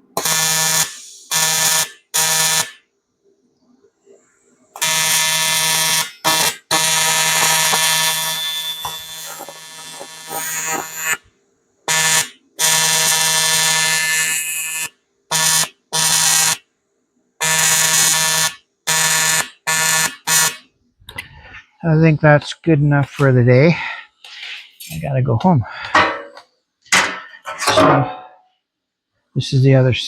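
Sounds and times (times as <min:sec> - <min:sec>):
welding arc buzzing: 0:00.0 - 0:02.8, 0:04.8 - 0:11.3, 0:11.9 - 0:16.6, 0:17.4 - 0:20.7.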